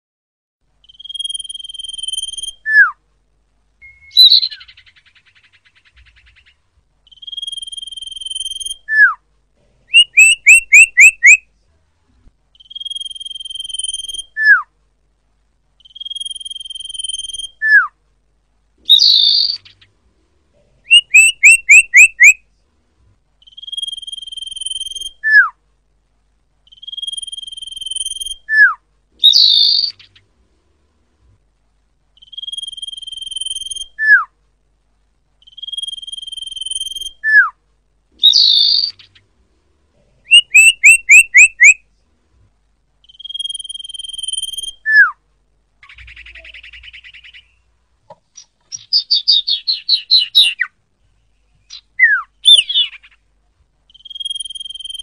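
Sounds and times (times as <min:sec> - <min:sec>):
bird whistling: 0:00.8 - 0:03.0, 0:03.8 - 0:06.5, 0:07.1 - 0:09.2, 0:09.9 - 0:11.4, 0:12.6 - 0:14.7, 0:15.8 - 0:17.9, 0:18.9 - 0:19.8, 0:20.9 - 0:22.4, 0:23.4 - 0:25.6, 0:26.7 - 0:30.2, 0:32.2 - 0:34.3, 0:35.4 - 0:37.6, 0:38.2 - 0:39.1, 0:40.3 - 0:41.8, 0:43.0 - 0:45.2, 0:45.8 - 0:47.6, 0:48.4 - 0:50.7, 0:51.7 - 0:53.2, 0:53.9 - 0:55.0
harsh raspy bird calls: 0:09.9 - 0:11.4, 0:20.8 - 0:22.4, 0:40.2 - 0:41.8, 0:48.3 - 0:50.7, 0:51.7 - 0:53.3.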